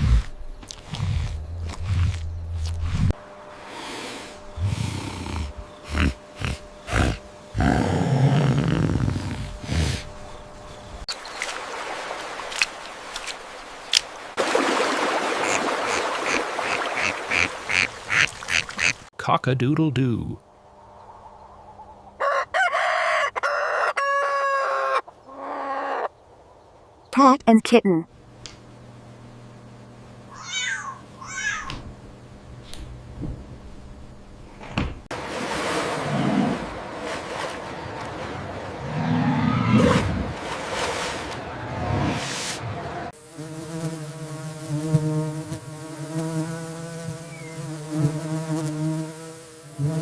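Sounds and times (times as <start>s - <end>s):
ducks quacking: 15.3s - 19.1s
kitten meowing: 30.3s - 31.8s.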